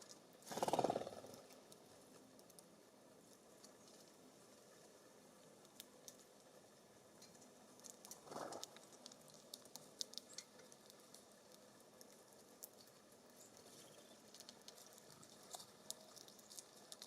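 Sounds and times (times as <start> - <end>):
birds pecking on wood: 7.2 - 17.0.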